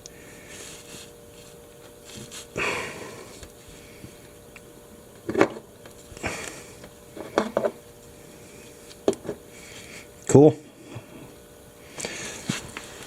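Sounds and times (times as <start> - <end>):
faint steady hum: 0.0 - 13.0
noisy breaths or sniffs: 0.1 - 4.2, 6.2 - 6.8, 10.8 - 13.0.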